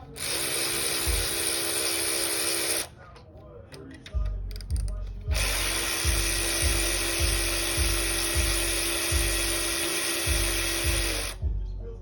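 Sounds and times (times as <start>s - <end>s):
power tool motor whining: 0.0s - 2.9s, 5.3s - 11.4s
music with bass beat: 4.2s - 9.7s, 10.3s - 12.0s.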